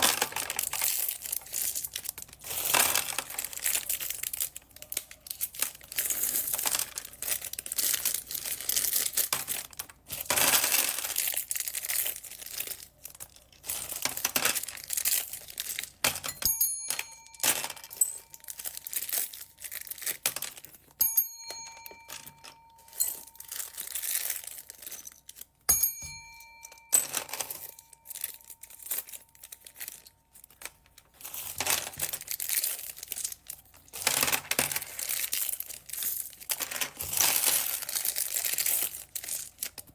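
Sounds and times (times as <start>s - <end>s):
plastic bags crinkling: 0.0s - 21.0s, 21.6s - 39.9s
ringing chime tones: 16.3s - 18.6s, 21.0s - 24.0s, 25.7s - 29.0s.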